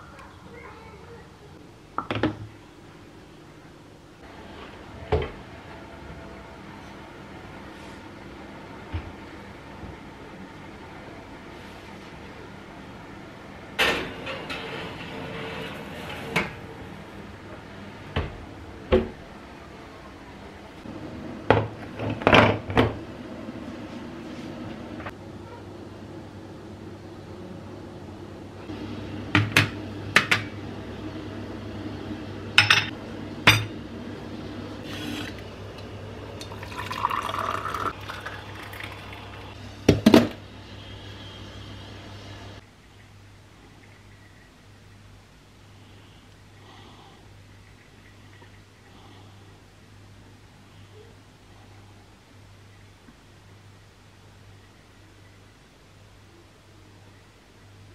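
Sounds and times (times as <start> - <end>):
dishes and glassware clinking: 32.6 - 33.7
liquid being poured: 36.4 - 39.6.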